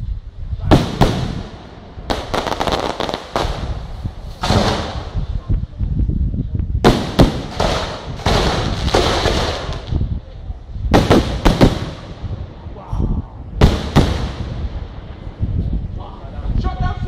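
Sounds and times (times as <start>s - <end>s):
firework bangs: 0.6s - 5.3s, 6.8s - 10.0s, 10.9s - 12.5s, 13.6s - 15.2s
firework crackling: 0.7s - 5.4s, 6.8s - 10.2s, 10.9s - 12.5s, 13.6s - 15.2s.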